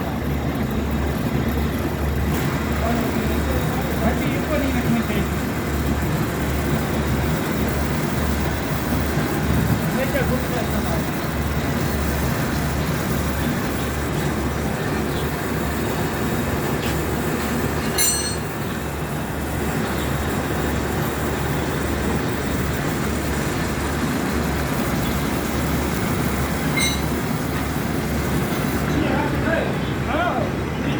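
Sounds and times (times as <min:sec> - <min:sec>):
high metallic rings: 0:17.8 - 0:18.8, 0:26.6 - 0:27.4.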